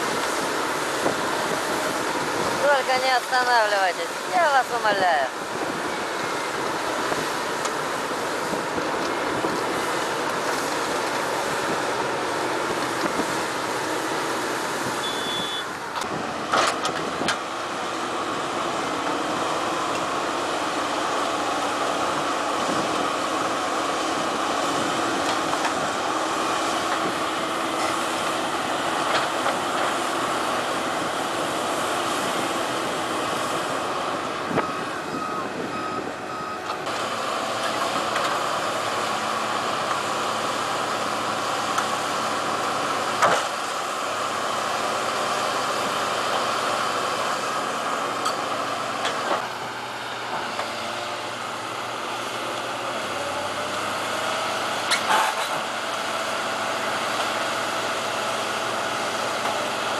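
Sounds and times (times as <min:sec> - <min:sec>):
heavy machinery running: 0:00.0 - 0:59.9
short beeps: 0:15.0 - 0:15.7.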